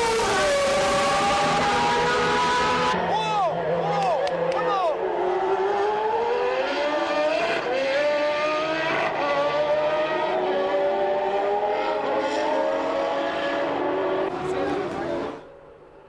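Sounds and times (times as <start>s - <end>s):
race car engines at high revs: 0.0s - 15.6s.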